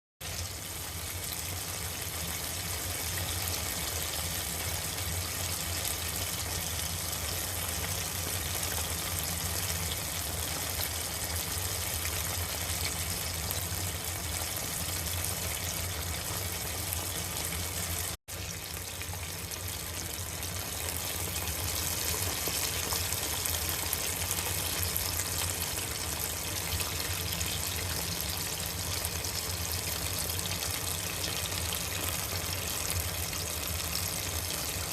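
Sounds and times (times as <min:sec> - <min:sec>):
food deep-frying in oil: 0:00.2 - 0:34.9.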